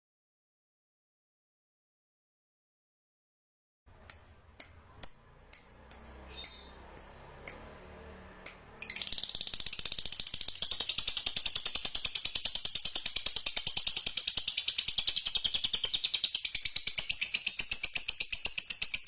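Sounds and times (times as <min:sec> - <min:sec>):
sharp high bird chirps: 0:04.0 - 0:19.0
fast chattering bird trill: 0:05.0 - 0:07.2, 0:08.2 - 0:19.0.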